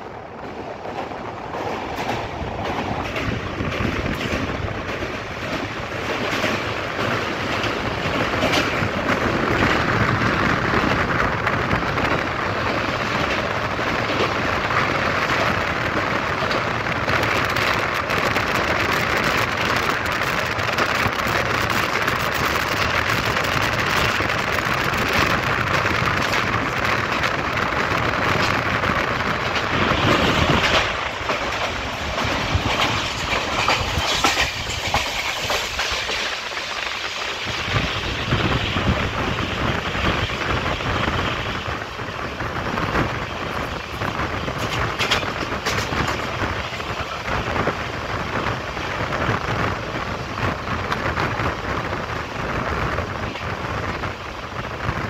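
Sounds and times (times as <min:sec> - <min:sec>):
train wheels rumbling on rails: 0:00.0 - 0:55.0
wind rushing: 0:00.0 - 0:55.0.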